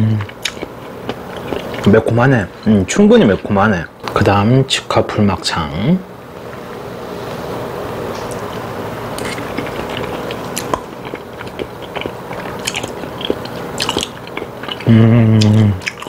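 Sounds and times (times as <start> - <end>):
close chewing with clicks: 0.2 - 1.9, 9.2 - 16.0.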